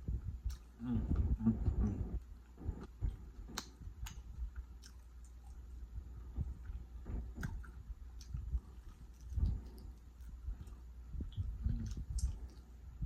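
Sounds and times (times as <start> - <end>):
person chewing steak: 0.4 - 12.8
wet mouth clicks and smacks: 2.8 - 5.7, 6.6 - 12.7.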